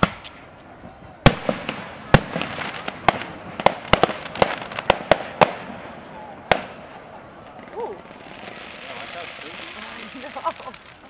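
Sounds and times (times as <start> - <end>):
fireworks bursting with sharp bangs: 0.0 - 11.0
fireworks crackling: 0.0 - 11.0.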